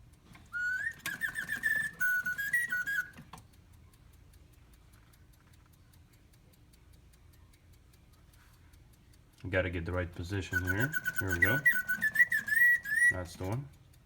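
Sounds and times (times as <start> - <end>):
clock movement ticking: 0.0 - 14.0
mechanical bird whistle: 0.5 - 3.3, 10.3 - 13.5.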